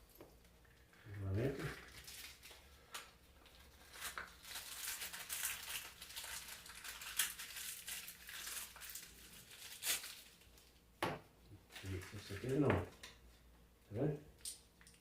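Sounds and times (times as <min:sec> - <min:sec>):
packaging crinkling and rustling: 0:00.3 - 0:10.7, 0:11.7 - 0:13.1.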